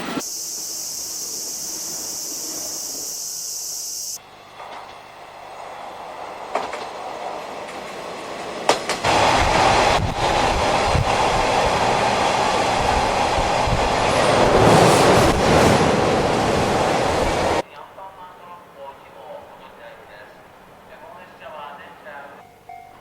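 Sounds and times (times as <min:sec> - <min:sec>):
train wheels clacking over rail joints: 0:06.4 - 0:11.9.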